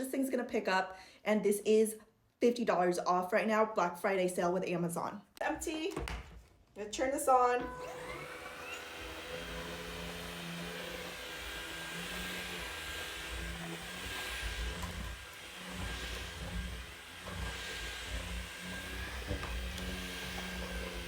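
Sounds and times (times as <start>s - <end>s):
cordless vacuum cleaner whining: 7.3s - 21.0s.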